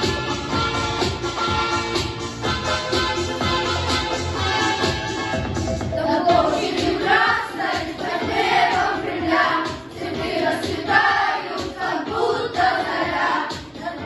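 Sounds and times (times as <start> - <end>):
music with steady beat: 0.0 - 14.0
boys' choir singing: 6.0 - 14.0.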